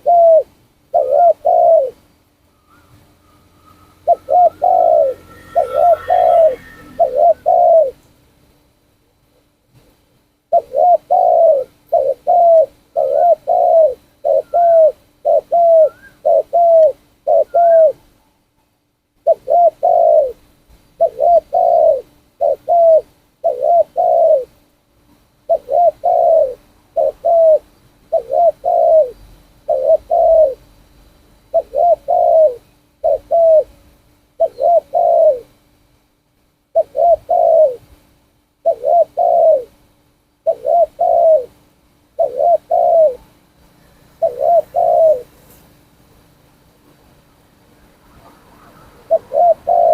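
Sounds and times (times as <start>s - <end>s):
dove cooing: 0.0s - 8.0s, 10.5s - 18.2s, 19.2s - 24.6s, 25.4s - 30.7s, 31.4s - 33.8s, 34.4s - 35.6s, 36.7s - 37.9s, 38.6s - 39.8s, 40.4s - 45.5s, 48.0s - 49.9s.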